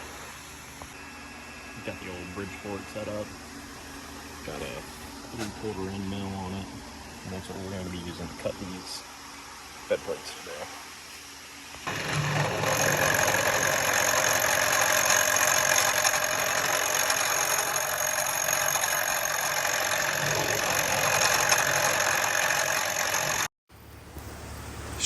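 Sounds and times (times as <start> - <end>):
milling machine cutting metal: 11.9 - 23.5.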